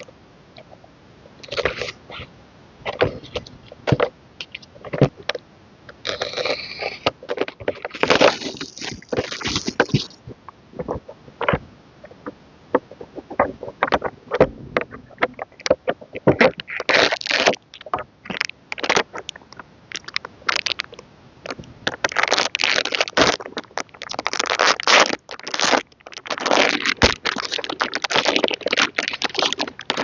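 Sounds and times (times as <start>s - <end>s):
wrapping rustling: 6.0s - 10.2s, 12.8s - 30.0s.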